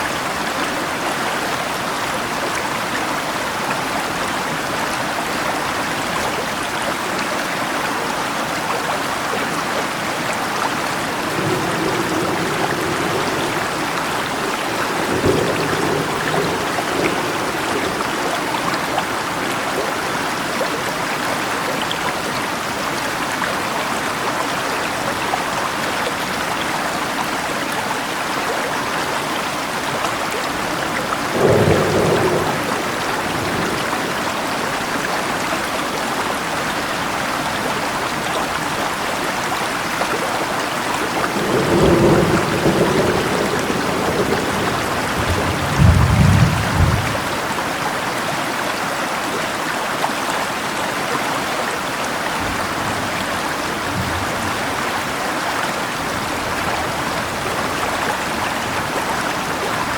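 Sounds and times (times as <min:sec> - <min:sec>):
river water running: 0:00.0 - 0:59.9
steady rain: 0:00.0 - 0:59.9
low thunder rolls: 0:11.0 - 0:20.4, 0:30.4 - 0:34.5, 0:41.2 - 0:47.5.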